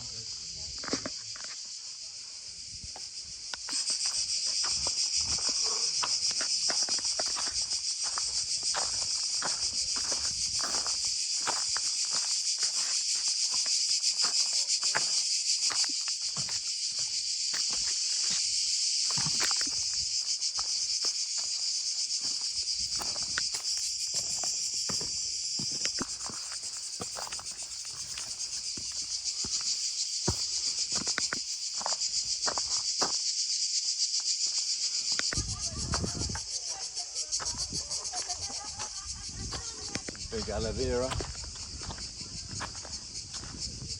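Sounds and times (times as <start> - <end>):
cicadas buzzing: 0.0 - 43.9
footsteps: 3.7 - 33.2.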